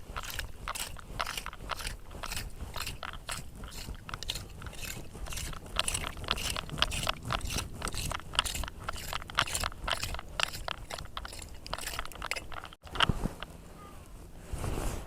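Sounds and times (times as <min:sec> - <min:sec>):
scraper dragging through gritty sand: 0:14.3 - 0:15.0.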